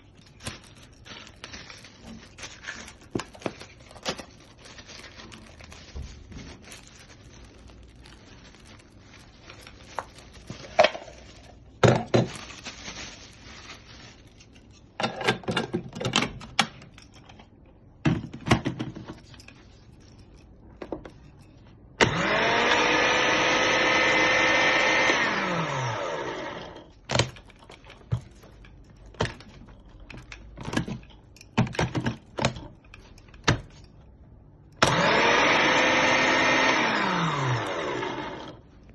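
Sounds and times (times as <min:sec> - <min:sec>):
blender motor running: 0:22.0 - 0:26.9, 0:34.8 - 0:38.6.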